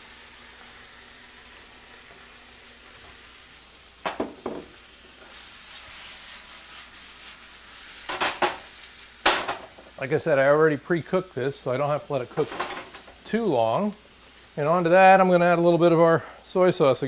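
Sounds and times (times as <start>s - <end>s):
chicken sizzling in hot oil: 0.0s - 17.0s
pan clattering: 4.0s - 4.8s, 8.1s - 9.8s, 12.3s - 13.2s.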